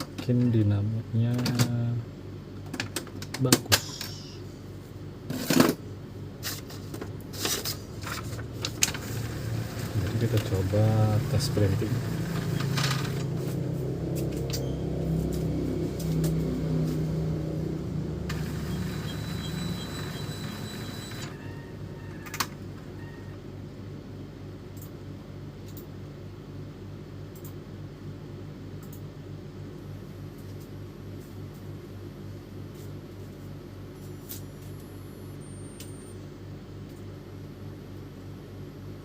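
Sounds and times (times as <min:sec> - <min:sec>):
steady low hum: 0:00.0 - 0:39.0
thin high whine: 0:03.7 - 0:04.6, 0:09.9 - 0:22.2
printer motor and carriage noise: 0:07.4 - 0:13.7, 0:18.3 - 0:23.2.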